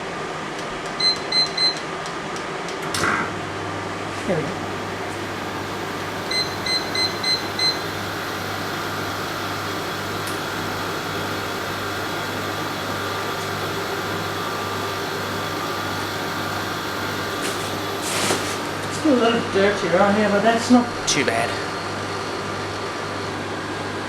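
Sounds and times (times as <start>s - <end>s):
air conditioner humming: 0.0s - 24.0s
control panel beeps: 1.0s - 1.8s, 6.3s - 7.8s.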